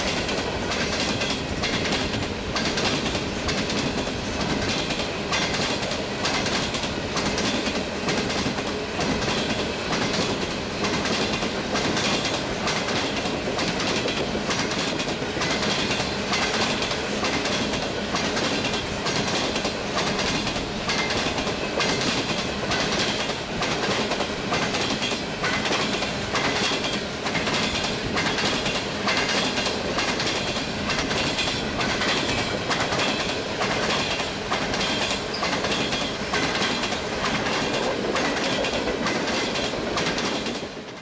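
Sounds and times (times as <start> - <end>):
train rolling rumble: 0.0 - 41.0
train wheels clickety-clack: 0.0 - 41.0.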